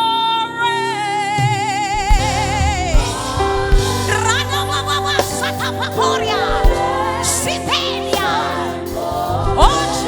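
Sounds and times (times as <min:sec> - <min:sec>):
gospel worship music: 0:00.0 - 0:10.0
drum hits: 0:02.1 - 0:05.8, 0:06.4 - 0:07.3.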